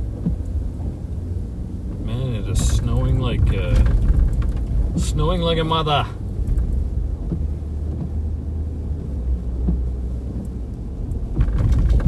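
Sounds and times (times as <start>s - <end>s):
car engine and tyres rumbling: 0.0s - 12.0s
short knocks and rattles: 2.5s - 5.1s, 11.2s - 12.0s.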